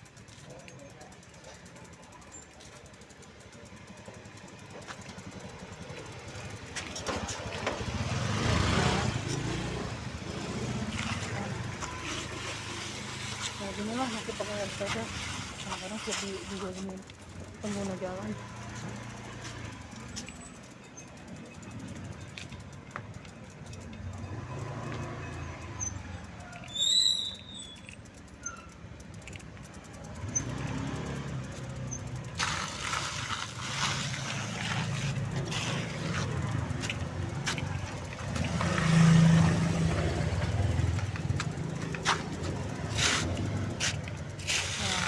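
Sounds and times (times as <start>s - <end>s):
road noise: 0.0s - 45.0s
vehicles passing: 0.0s - 45.0s
short high chirp: 26.7s - 28.0s.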